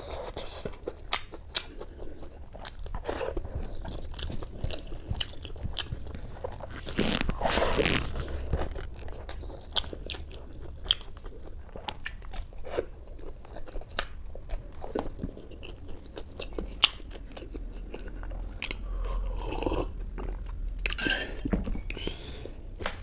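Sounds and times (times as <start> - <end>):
person chewing with wet mouth clicks: 0.7 - 6.2, 8.6 - 21.0.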